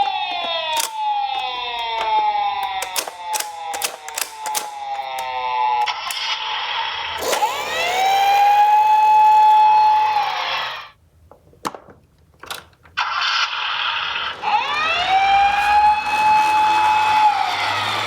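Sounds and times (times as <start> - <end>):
toy siren wailing: 0.0 - 11.0, 13.1 - 18.0
sharp clicks: 0.7 - 6.4.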